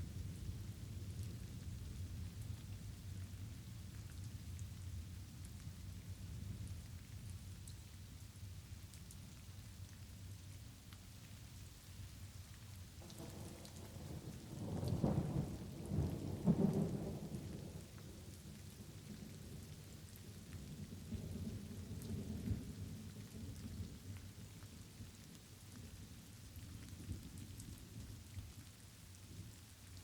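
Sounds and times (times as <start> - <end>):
light rain falling: 0.0 - 30.0
thunder rumbling: 13.0 - 18.2.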